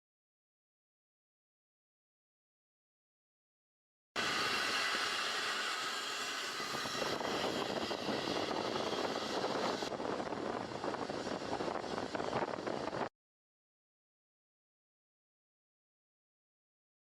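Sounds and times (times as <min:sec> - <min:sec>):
jet engines rushing: 0:04.2 - 0:13.1.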